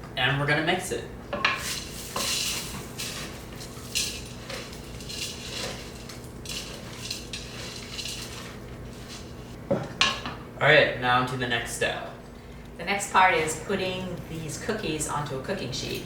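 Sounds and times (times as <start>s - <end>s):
utensil scraping a bowl: 1.5s - 9.6s
utensil stirring thick dough: 1.5s - 9.6s.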